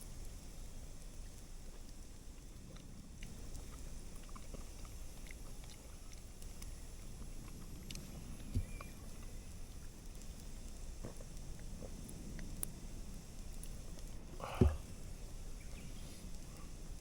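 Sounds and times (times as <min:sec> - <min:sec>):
wood fire crackling: 0:00.0 - 0:17.0
dull thump: 0:14.4 - 0:14.9.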